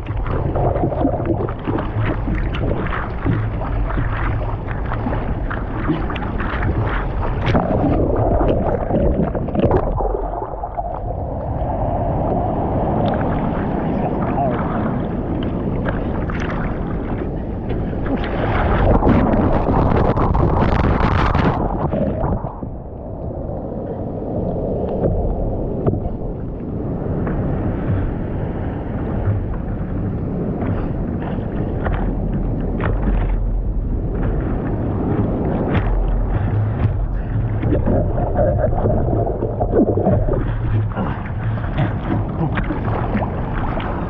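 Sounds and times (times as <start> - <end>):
low rumbles: 0.0 - 44.0
steady rushing noise: 0.0 - 44.0
wind buffeting microphone: 0.0 - 44.0.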